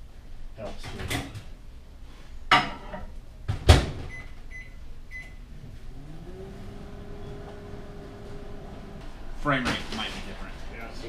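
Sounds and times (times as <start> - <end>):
microwave oven humming: 3.8 - 9.6.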